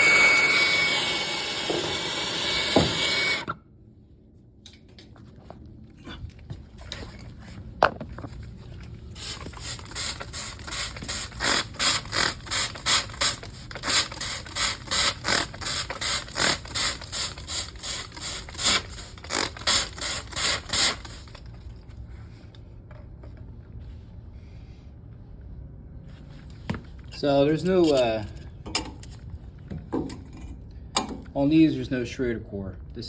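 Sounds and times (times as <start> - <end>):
ratcheting hand tool clicking: 9.6 - 21.4.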